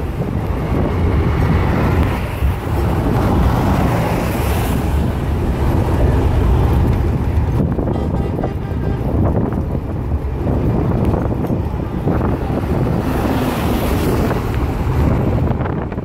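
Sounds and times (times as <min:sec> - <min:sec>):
moving train rumble: 0:00.0 - 0:16.0
wind buffeting microphone: 0:00.0 - 0:16.0.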